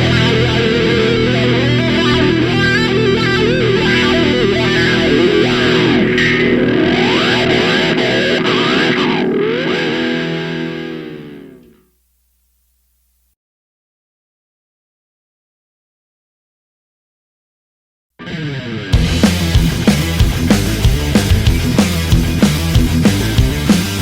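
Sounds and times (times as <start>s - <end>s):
rock music with electric guitar: 0.0s - 11.8s, 18.2s - 24.0s.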